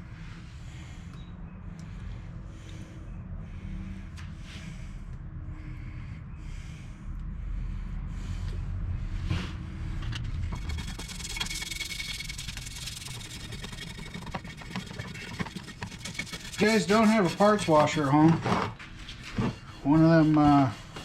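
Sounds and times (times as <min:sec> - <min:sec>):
brush scrubbing engine part: 0:10.5 - 0:21.0.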